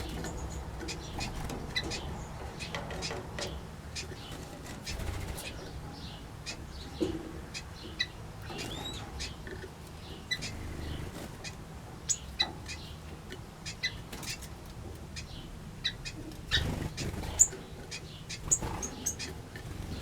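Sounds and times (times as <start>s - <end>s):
low background hum: 0.0s - 20.0s
small birds chirping: 0.0s - 20.0s.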